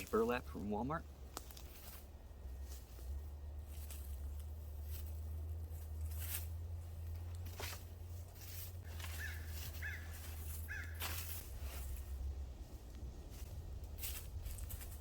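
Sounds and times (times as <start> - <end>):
rustling brush or burlap: 0.0 - 15.0
low rumble: 1.0 - 15.0
bird calling: 8.9 - 11.2.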